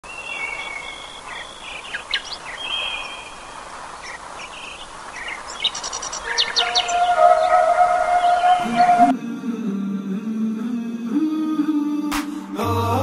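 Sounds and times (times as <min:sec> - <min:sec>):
songbirds singing and chirping: 0:00.0 - 0:09.1
outdoor background hiss: 0:00.0 - 0:09.4.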